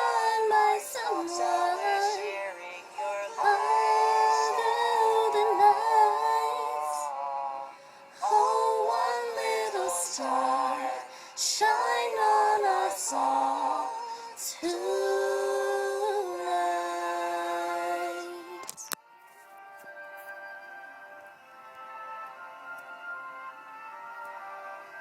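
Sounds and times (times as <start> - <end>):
person singing slow gentle song: 0.0 - 19.0.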